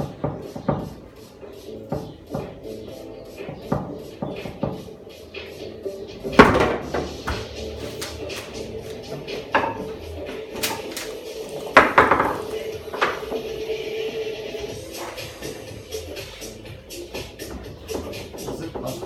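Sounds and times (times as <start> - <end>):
foosball ball clacks: 6.3 - 13.6
rods and handles clicking: 6.4 - 13.6.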